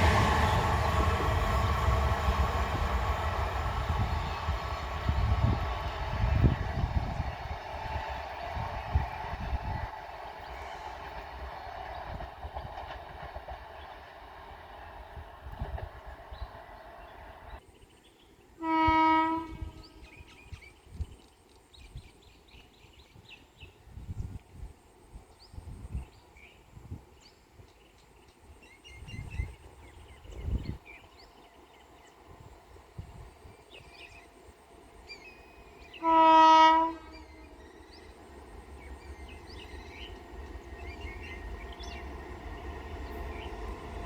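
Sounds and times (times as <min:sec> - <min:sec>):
train horn blasts: 0:18.6 - 0:20.2, 0:35.8 - 0:37.6.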